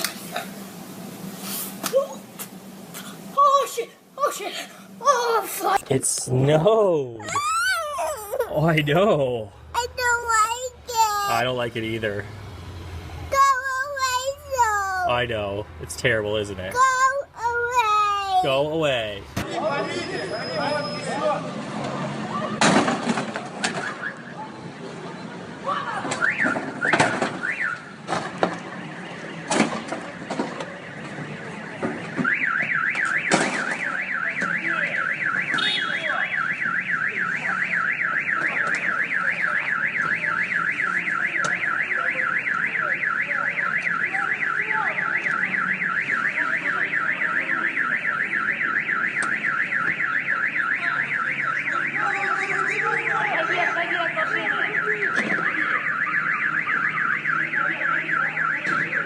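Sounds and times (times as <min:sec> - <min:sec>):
car alarm warbling siren: 0:32.2 - 0:59.0.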